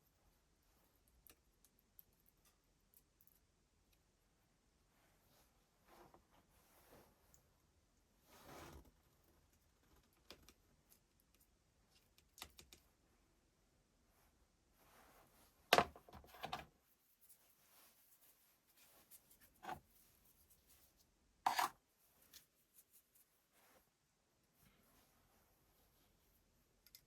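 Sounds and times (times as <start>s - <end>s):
clicks and knocks of small parts: 26.8s - 27.0s.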